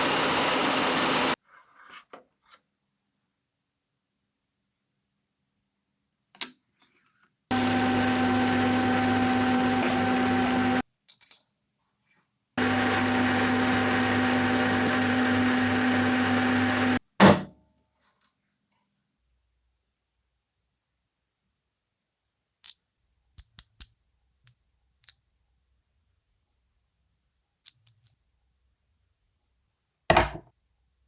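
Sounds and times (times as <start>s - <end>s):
power tool motor humming: 0.0s - 1.4s, 7.5s - 10.8s, 12.6s - 17.0s.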